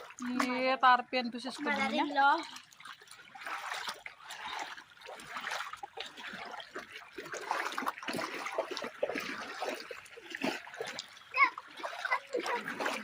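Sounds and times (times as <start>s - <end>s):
floodwater trickling and splashing: 0.0s - 13.0s.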